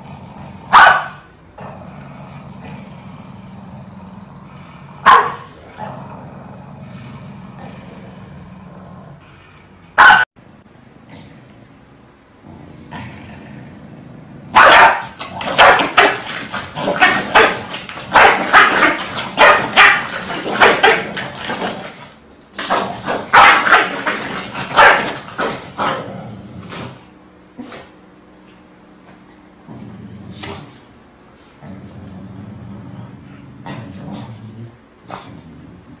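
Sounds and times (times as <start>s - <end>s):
dogs barking: 0.7s - 1.3s, 5.0s - 5.6s, 9.9s - 10.3s, 14.5s - 21.8s, 22.6s - 26.0s.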